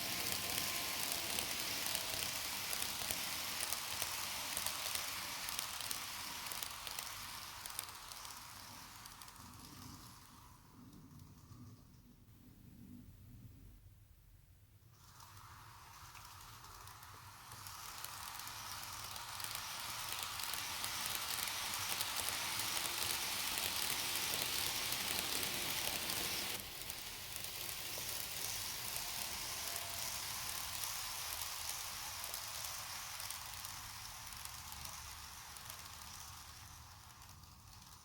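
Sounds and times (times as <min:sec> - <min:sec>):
model train wheels rattling: 0:00.0 - 0:12.3, 0:14.8 - 0:38.0.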